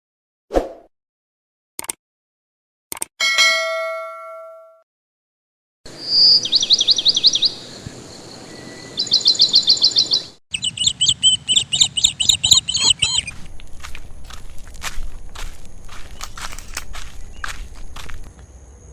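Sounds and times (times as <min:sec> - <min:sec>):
sharp clicks: 0:01.8 - 0:02.0, 0:02.9 - 0:03.1
birds chirping in trills: 0:05.9 - 0:18.9.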